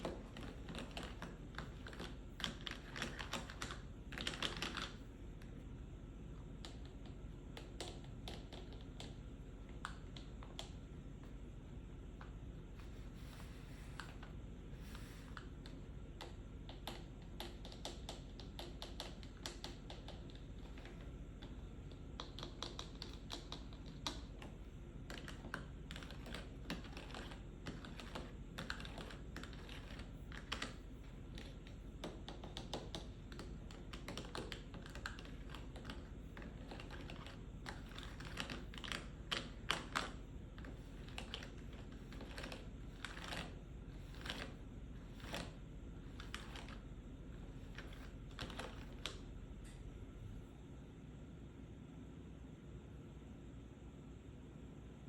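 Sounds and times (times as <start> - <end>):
fingers tapping on pill box: 15.4 - 46.8.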